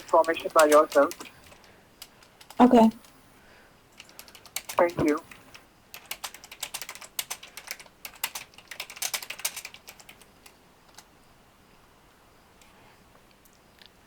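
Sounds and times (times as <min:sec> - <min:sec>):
computer keyboard typing: 0:00.0 - 0:03.2, 0:03.9 - 0:11.1.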